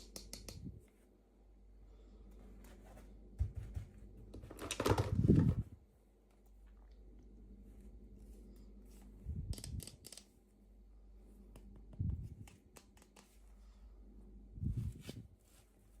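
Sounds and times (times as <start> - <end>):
packaging knocks and crinkling: 3.4 - 5.6
plastic packaging clicks and rustles: 4.4 - 5.5.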